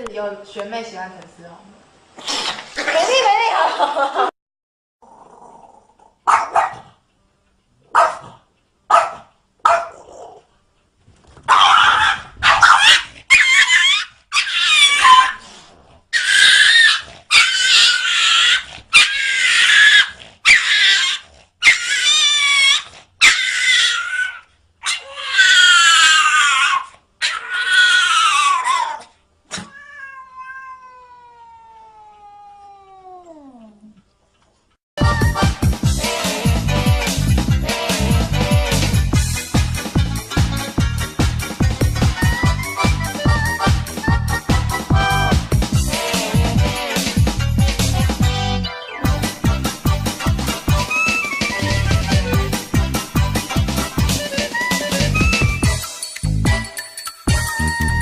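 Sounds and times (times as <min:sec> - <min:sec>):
cat yowling: 0:11.5 - 0:15.4, 0:16.2 - 0:33.8.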